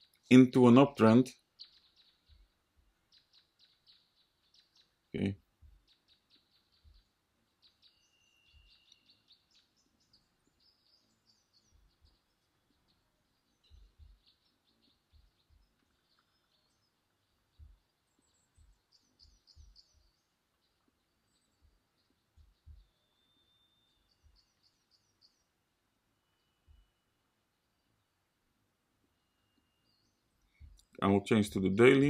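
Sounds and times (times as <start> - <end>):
faint high bird chirps: 0.0 - 32.0
soft low thumps: 5.6 - 5.9, 6.7 - 7.2, 11.6 - 12.6, 13.6 - 14.4, 15.0 - 16.3, 17.4 - 23.0, 30.5 - 31.0.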